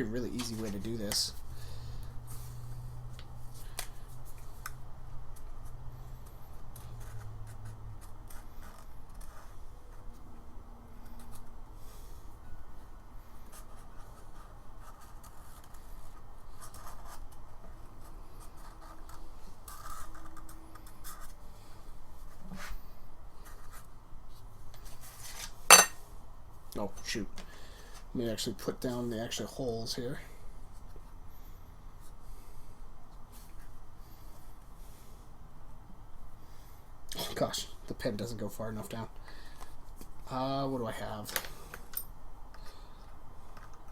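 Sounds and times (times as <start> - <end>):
paper scratching and rustling: 5.3 - 10.3, 13.4 - 21.4.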